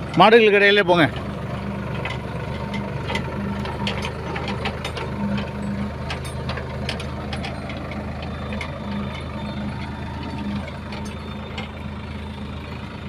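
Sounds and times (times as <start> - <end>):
tractor engine running: 0.0 - 13.0
metal parts rattling and clicking: 1.9 - 11.8.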